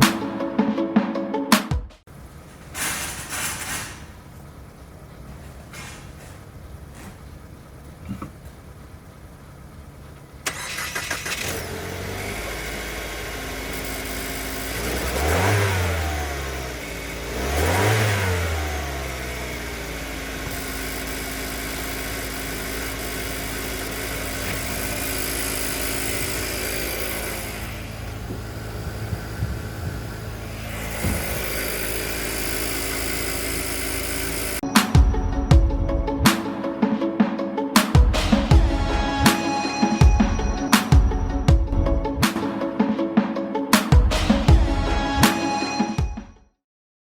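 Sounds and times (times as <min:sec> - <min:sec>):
car engine starting and revving: 0:02.1 - 0:36.5.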